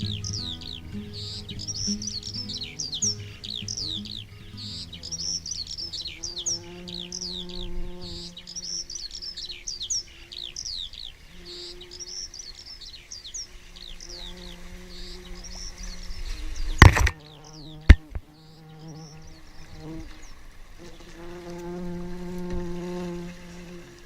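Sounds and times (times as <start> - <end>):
soft held musical notes: 0.0 - 6.2
birds chirping: 0.0 - 22.2.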